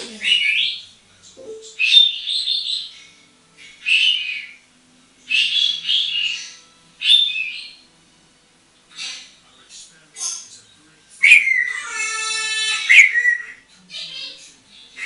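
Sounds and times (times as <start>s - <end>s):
parrot chirping whistly calls: 7.0s - 7.8s, 11.2s - 13.6s.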